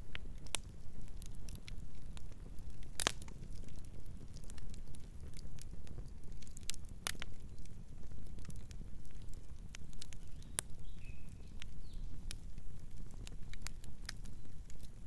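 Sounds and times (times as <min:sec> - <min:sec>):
wood fire crackling: 0:00.0 - 0:15.0
faint bird chirping: 0:10.2 - 0:12.2.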